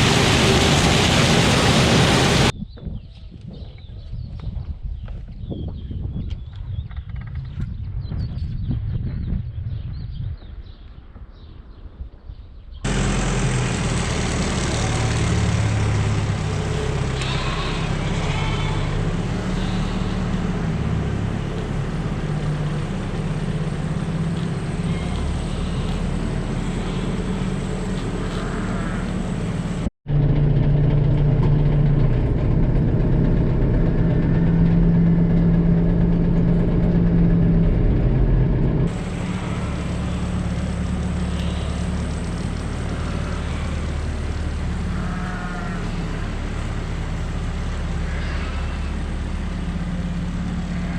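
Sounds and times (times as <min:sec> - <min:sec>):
tractor engine running: 0:00.0 - 0:02.6, 0:12.8 - 0:50.9.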